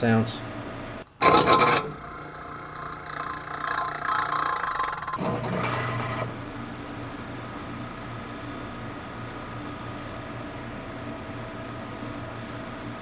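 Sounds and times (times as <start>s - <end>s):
compressor low hum: 0.0s - 13.0s
compressor squeaking and rattling: 1.2s - 6.3s.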